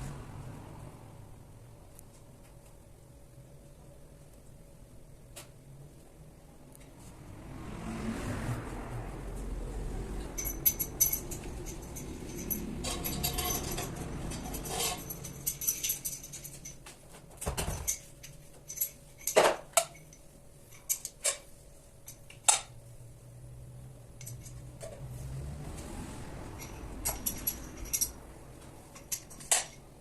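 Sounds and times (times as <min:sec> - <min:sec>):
metal tools clinking: 0:10.3 - 0:22.7, 0:24.2 - 0:25.1, 0:26.6 - 0:28.2, 0:28.8 - 0:30.0.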